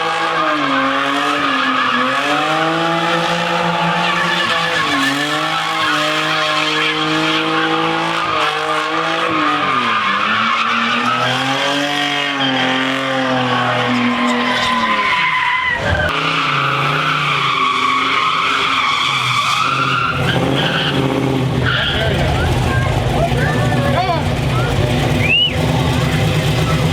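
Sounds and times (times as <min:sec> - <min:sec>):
car engine revving high: 0:00.0 - 0:26.9
tyres squealing: 0:13.8 - 0:26.9.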